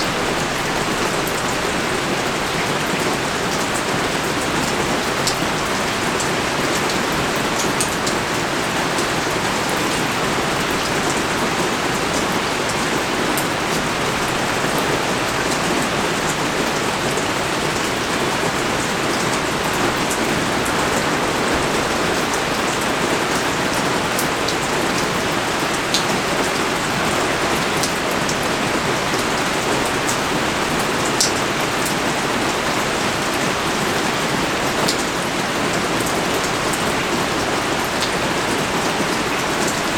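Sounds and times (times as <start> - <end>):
heavy rain pouring: 0.0 - 39.9
rain drop ticks: 31.2 - 31.4.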